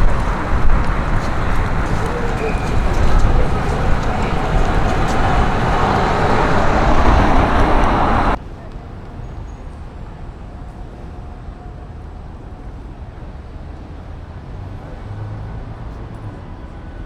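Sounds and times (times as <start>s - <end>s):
low engine hum: 0.0s - 8.4s
passing traffic rumble: 0.0s - 8.4s.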